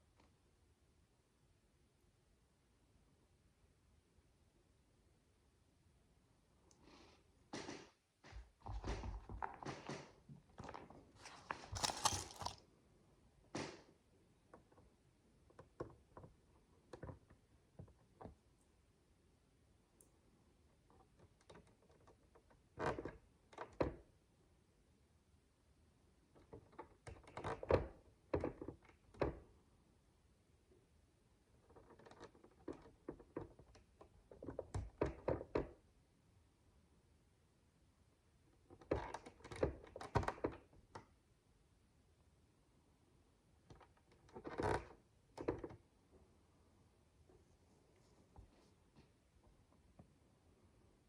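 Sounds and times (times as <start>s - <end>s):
plastic bricks rattling: 11.5s - 12.6s.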